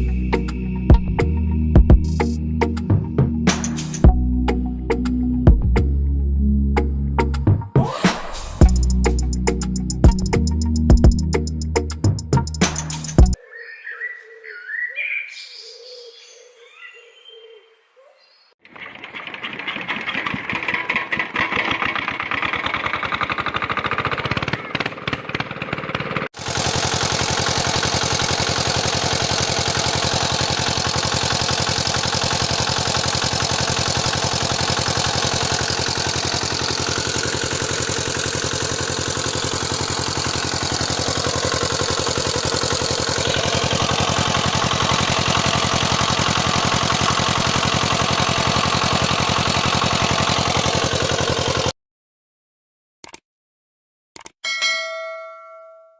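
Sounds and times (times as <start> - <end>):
small diesel engine running fast: 0.0 - 5.9, 7.8 - 13.4, 18.7 - 51.7.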